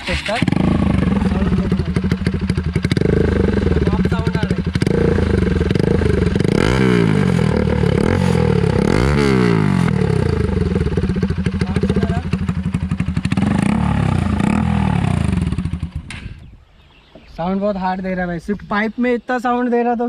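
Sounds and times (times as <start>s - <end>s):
loud motorcycle engine revving: 0.0s - 16.2s.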